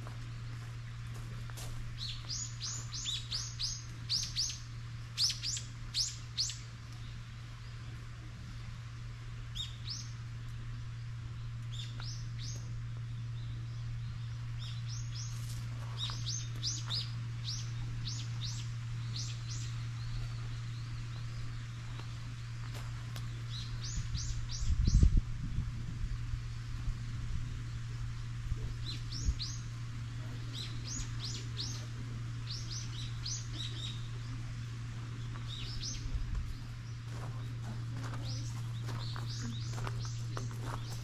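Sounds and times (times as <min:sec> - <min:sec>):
small birds chirping: 0:00.0 - 0:41.0
steady low hum: 0:00.0 - 0:41.0.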